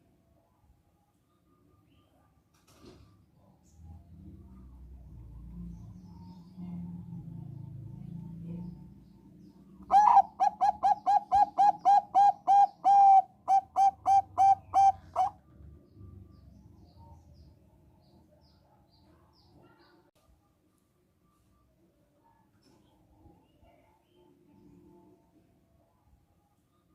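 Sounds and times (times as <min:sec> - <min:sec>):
dove cooing: 0:09.8 - 0:15.4.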